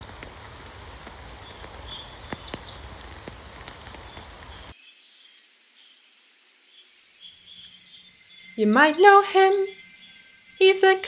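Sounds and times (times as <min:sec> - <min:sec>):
wind on microphone: 0:00.0 - 0:04.7
songbird chirping: 0:00.4 - 0:11.0.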